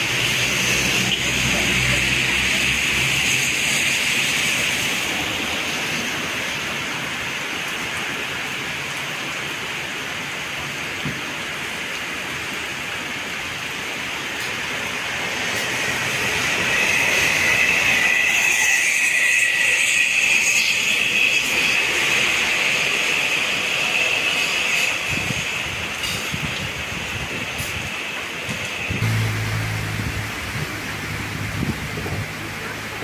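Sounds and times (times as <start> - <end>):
heavy rain hissing: 0.0 - 18.2, 22.2 - 33.0
vehicles swishing past on wet road: 0.0 - 20.2, 21.1 - 33.0.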